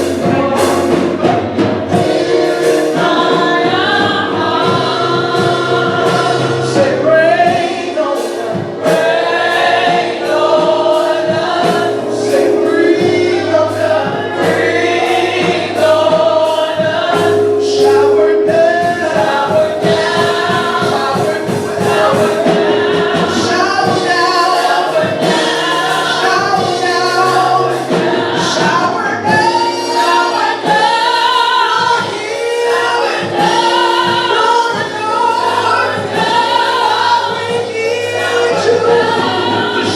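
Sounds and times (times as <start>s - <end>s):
bass and keyboard notes: 0.0s - 39.9s
gospel choir singing: 0.0s - 39.9s
percussion strikes: 0.0s - 39.9s.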